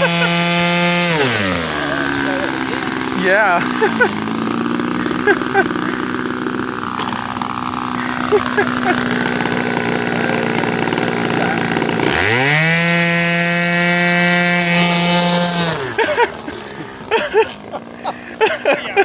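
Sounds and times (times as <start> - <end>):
electric model plane motor whine: 0.0 - 19.0.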